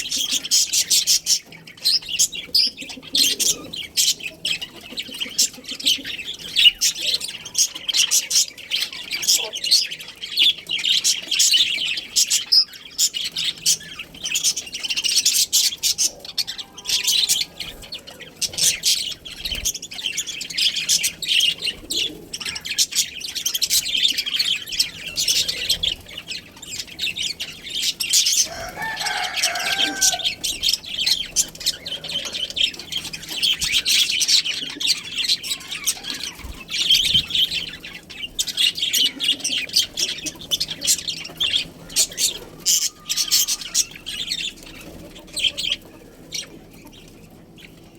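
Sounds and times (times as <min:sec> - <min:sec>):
budgerigars chattering and chirping: 0:00.0 - 0:47.9
harsh lower bird call: 0:27.5 - 0:36.4.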